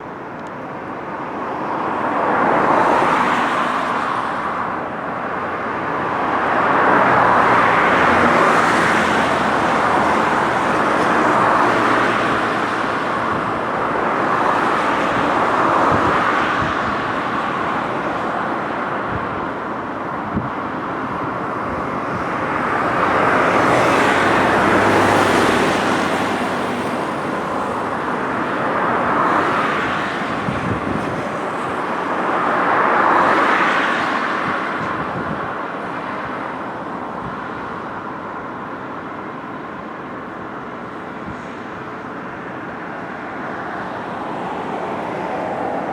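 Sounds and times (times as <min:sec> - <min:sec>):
cars passing on a bridge: 0:00.0 - 0:45.9.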